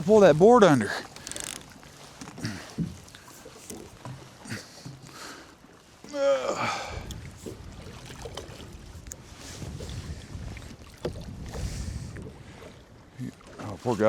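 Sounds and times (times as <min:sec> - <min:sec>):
man groaning: 0:06.1 - 0:07.0
wind buffeting microphone: 0:06.7 - 0:13.2.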